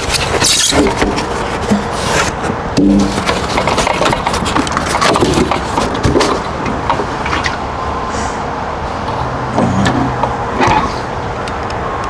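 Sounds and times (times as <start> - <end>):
water heater knocking and scraping: 0.0 - 7.8.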